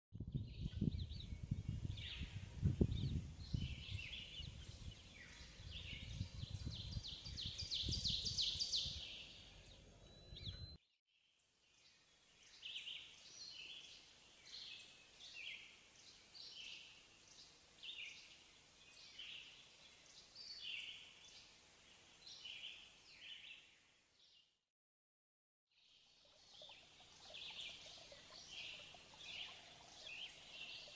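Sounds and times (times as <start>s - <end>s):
songbirds chirping: 0.2s - 24.6s, 25.7s - 30.9s
bird trill: 3.9s - 10.8s, 26.2s - 30.9s.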